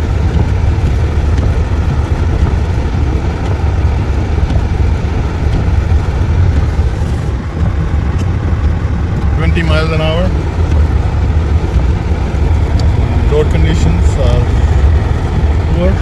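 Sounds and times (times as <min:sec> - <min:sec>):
vehicle driving on snow: 0:00.0 - 0:16.0.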